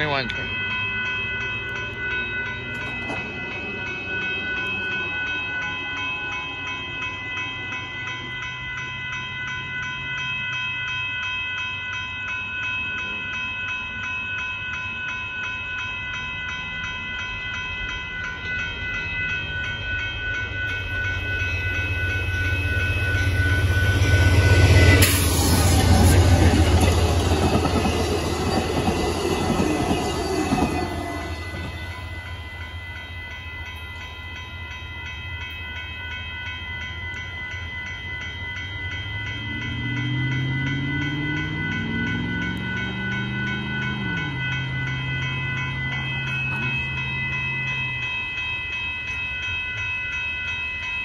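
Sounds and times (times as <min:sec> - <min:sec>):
railroad crossing bell ringing: 0:00.0 - 0:51.0
diesel locomotive rumble: 0:17.3 - 0:49.8.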